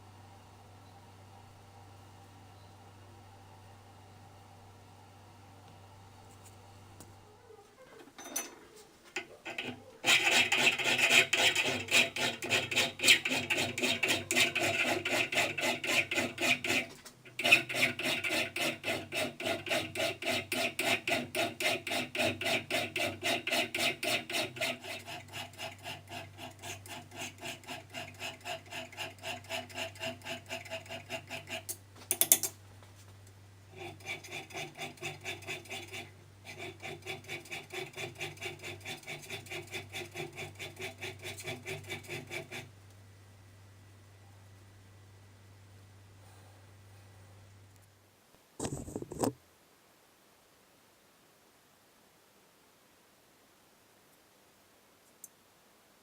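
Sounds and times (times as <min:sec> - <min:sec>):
rhythmic metal scraping: 0:09.4 - 0:31.7.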